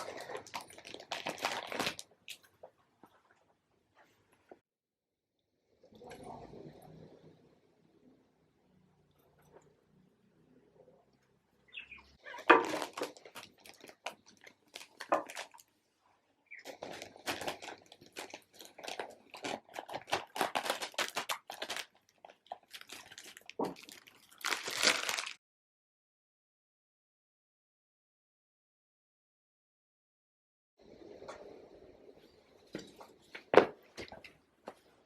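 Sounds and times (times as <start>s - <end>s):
crinkling and crunching handling noises: 0.0s - 4.6s, 12.2s - 25.4s.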